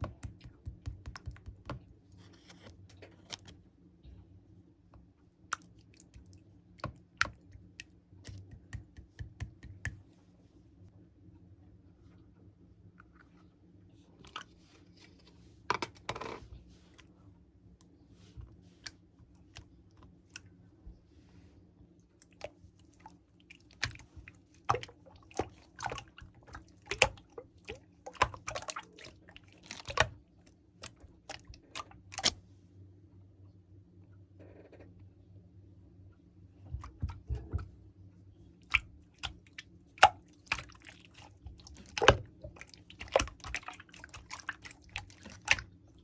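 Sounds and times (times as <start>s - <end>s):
sharp clicks and crunchy taps: 0.0s - 1.9s
faint low hum: 0.0s - 46.0s.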